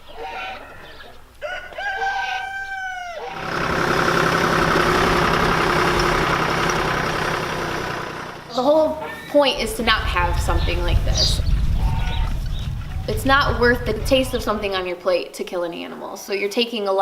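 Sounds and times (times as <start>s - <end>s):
rooster crowing: 0.1s - 3.6s
steady rushing noise: 9.4s - 15.5s.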